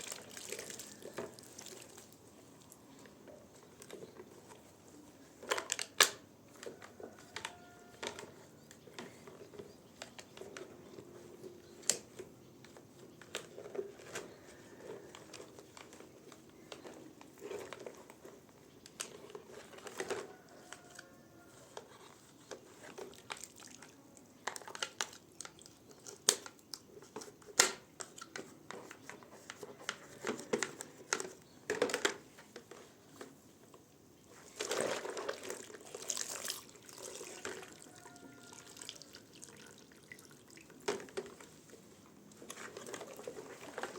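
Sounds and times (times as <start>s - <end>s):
rustling: 26.4s - 38.5s, 40.8s - 43.9s.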